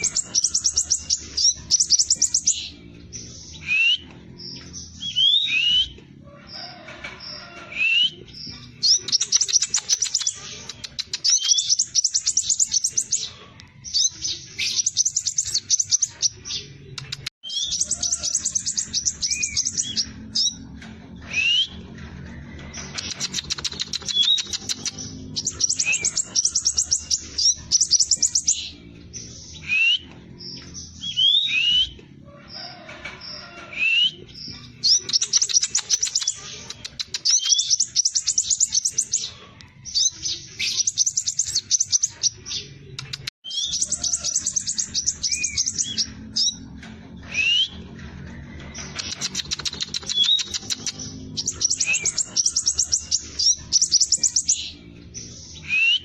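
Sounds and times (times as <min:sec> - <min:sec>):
bird singing rapid high notes: 0:07.9 - 0:20.6, 0:22.9 - 0:32.0, 0:48.9 - 0:56.0.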